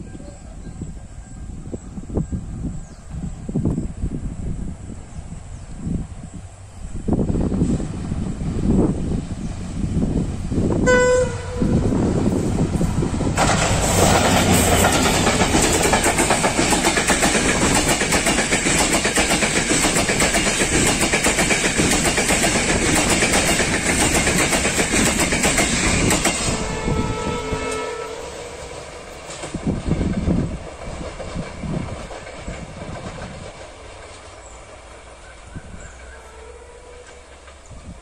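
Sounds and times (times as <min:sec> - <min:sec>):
locomotive horn blast: 0:10.8 - 0:12.2, 0:26.4 - 0:29.0, 0:36.0 - 0:37.4.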